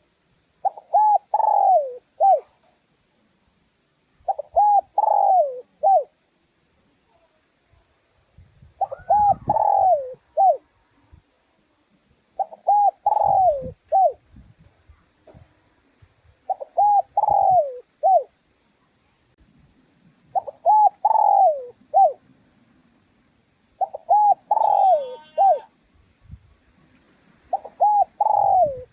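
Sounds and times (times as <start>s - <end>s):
dove cooing: 0.6s - 2.6s, 4.2s - 6.2s, 8.8s - 10.7s, 12.4s - 14.2s, 16.4s - 18.3s, 20.3s - 22.2s, 23.8s - 25.7s, 27.5s - 28.9s.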